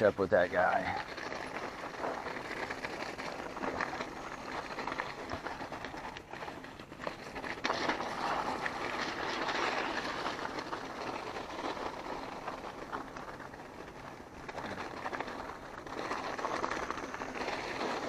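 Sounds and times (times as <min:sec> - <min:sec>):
bike rattles and knocks: 0:00.0 - 0:18.0
bike tyres on dirt trail: 0:00.0 - 0:18.0.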